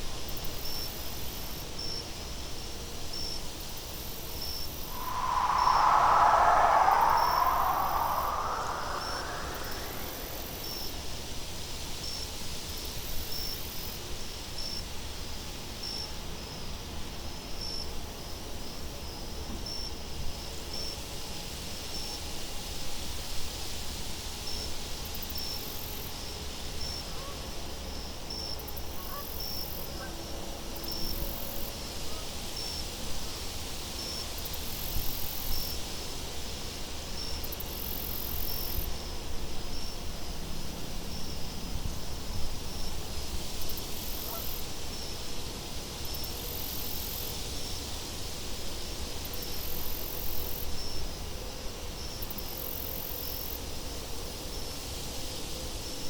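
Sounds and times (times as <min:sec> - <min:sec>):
crickets chirping: 0:04.9 - 0:10.8
wind with low rumble: 0:04.9 - 0:11.0.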